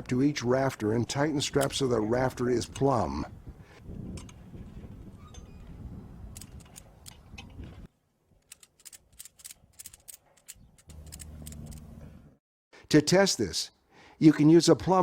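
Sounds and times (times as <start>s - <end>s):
ratchet strap clicking: 8.4s - 11.9s.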